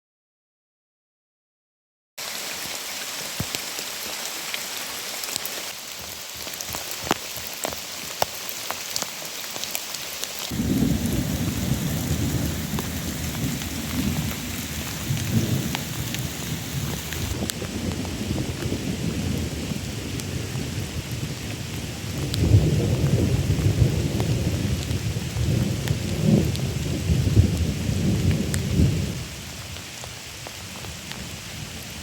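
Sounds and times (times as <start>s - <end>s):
heavy rain falling: 2.2s - 32.0s
big raindrops cracking: 5.1s - 29.2s
low thunder rumbling: 10.5s - 29.2s.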